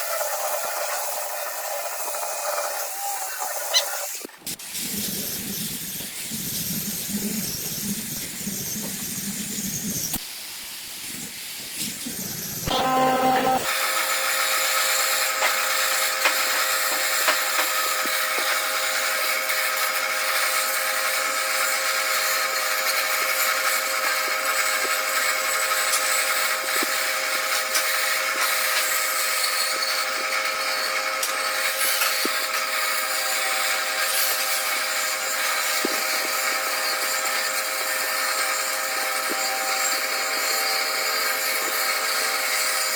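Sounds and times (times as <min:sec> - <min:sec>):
power tool whining on wood: 0:11.9 - 0:42.9.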